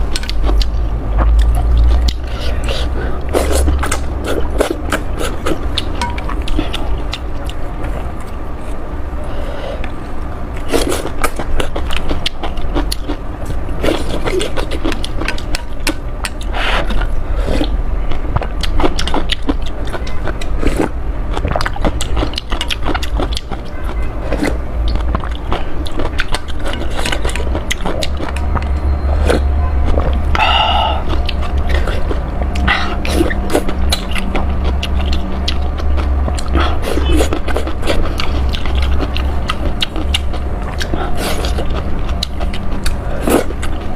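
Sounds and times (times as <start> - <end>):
chewing and slurping noodles: 0.0 - 43.9
constant low rumble: 0.0 - 43.9
brief pitched tone: 28.4 - 30.0.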